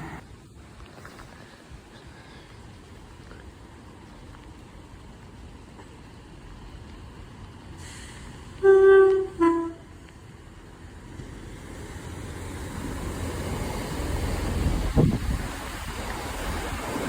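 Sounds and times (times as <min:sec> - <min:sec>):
train rumbling: 0:00.0 - 0:17.0
train horn two notes: 0:08.6 - 0:09.9.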